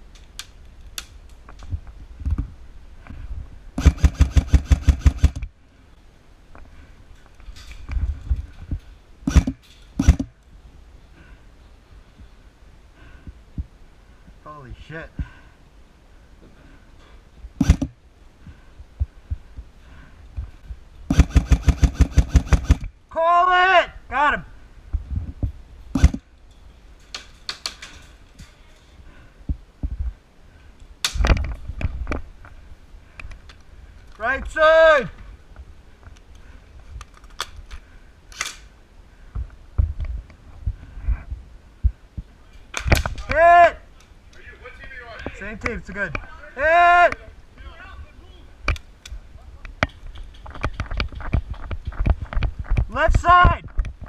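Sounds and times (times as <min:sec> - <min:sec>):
airsoft rifle shots: 0:03.8 - 0:05.4, 0:09.3 - 0:10.3, 0:17.6 - 0:17.9, 0:21.1 - 0:22.9, 0:26.0 - 0:26.2
sharp clicks: 0:03.8 - 0:05.5, 0:09.3 - 0:10.4, 0:17.6 - 0:17.9, 0:21.1 - 0:22.9, 0:26.0 - 0:26.2.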